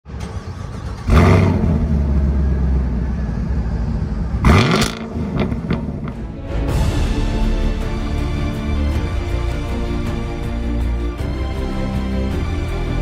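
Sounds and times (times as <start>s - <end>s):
car engine idling and revving: 0.0s - 6.5s.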